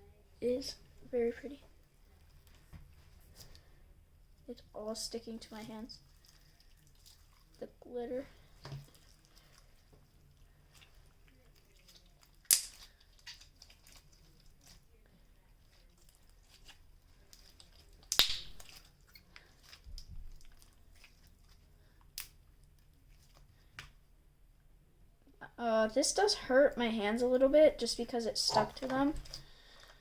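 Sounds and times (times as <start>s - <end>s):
slime sticky crackling: 5.4s - 23.5s
slime popping: 11.8s - 14.2s, 16.4s - 21.2s.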